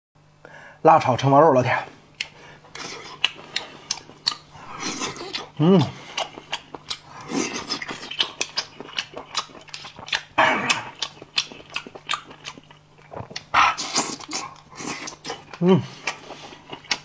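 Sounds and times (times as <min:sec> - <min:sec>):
wet chewing and lip smacking: 0:02.2 - 0:17.0
person humming breathily: 0:05.6 - 0:06.1, 0:15.5 - 0:16.1.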